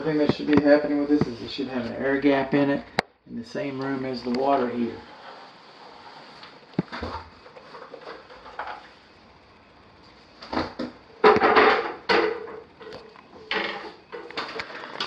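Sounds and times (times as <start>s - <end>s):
objects knocking and clattering: 6.8s - 9.0s, 10.4s - 15.0s.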